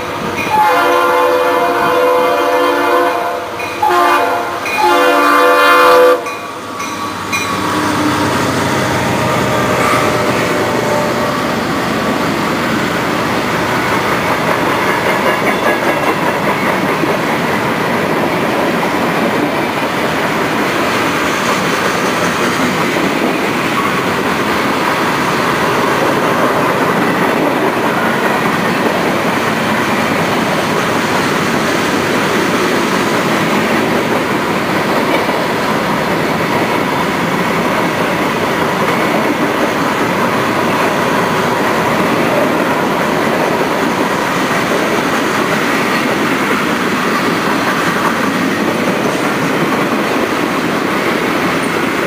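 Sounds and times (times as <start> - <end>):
locomotive air horn: 0.5 - 6.3, 7.6 - 11.6
steel wheels clacking on rails: 6.2 - 52.0
freight cars rumbling past: 6.5 - 19.5.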